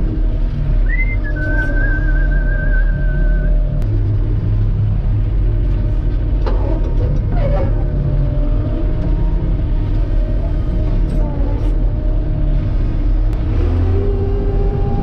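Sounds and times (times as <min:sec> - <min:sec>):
combine harvester engine drone: 0:00.0 - 0:15.0
machinery rattle: 0:03.8 - 0:13.4.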